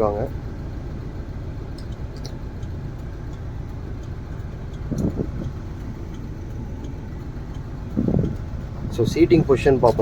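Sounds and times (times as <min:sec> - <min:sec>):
diesel engine idling: 0:00.0 - 0:10.0
low thump: 0:04.9 - 0:05.6, 0:08.0 - 0:08.4.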